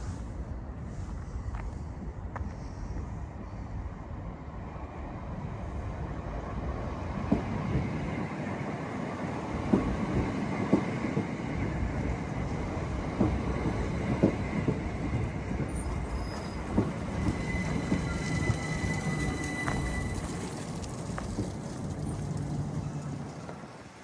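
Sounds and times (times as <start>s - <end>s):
train rumbling on rails: 0.0s - 24.0s
wheels clicking over track: 9.5s - 24.0s
high wheel squeal: 13.7s - 21.4s.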